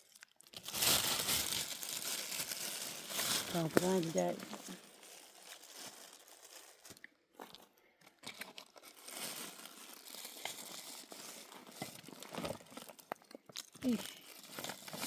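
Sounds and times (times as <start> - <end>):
faint crinkly rustling: 0.0 - 15.0.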